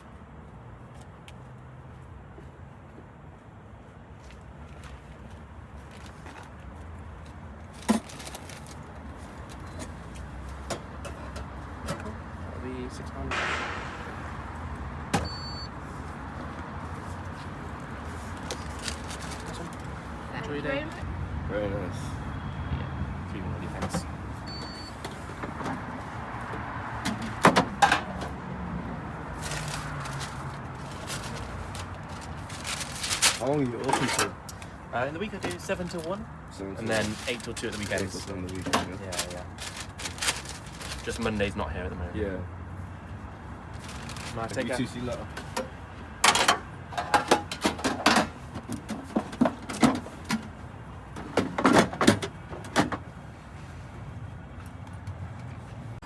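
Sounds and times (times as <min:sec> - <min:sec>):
sharp knocks: 0:13.3 - 0:15.3.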